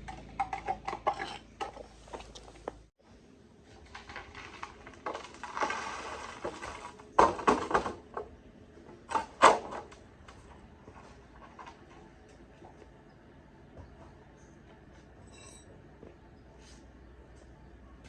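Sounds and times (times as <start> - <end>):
knocks and clatters: 0.0 - 2.8.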